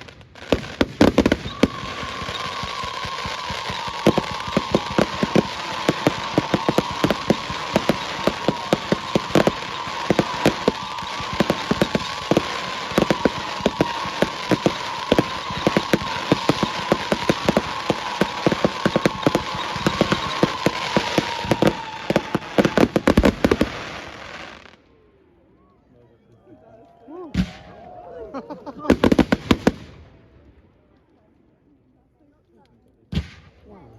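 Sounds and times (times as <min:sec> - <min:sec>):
fireworks crackling bangs: 0:00.0 - 0:24.8, 0:28.9 - 0:30.0.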